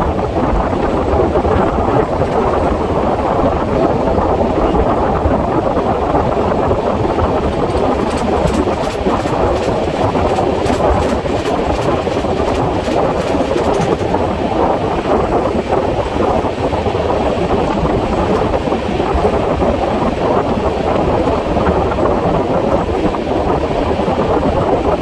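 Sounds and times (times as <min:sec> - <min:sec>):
train wheels rumbling on rail: 0:00.0 - 0:25.0
rapid clicks: 0:00.8 - 0:03.3, 0:07.1 - 0:14.6, 0:17.6 - 0:19.2.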